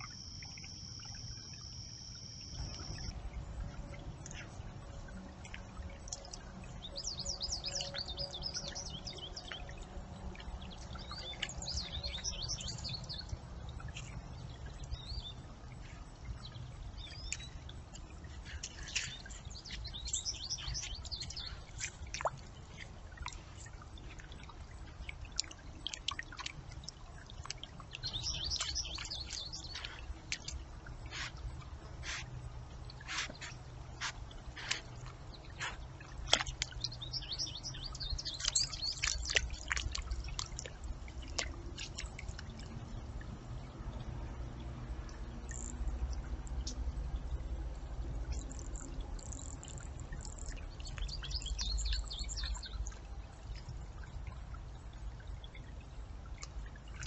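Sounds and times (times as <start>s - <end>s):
steady low rumble: 0.2s - 57.0s
small birds chirping: 6.1s - 26.5s, 27.8s - 32.3s, 32.9s - 42.3s, 48.3s - 53.0s.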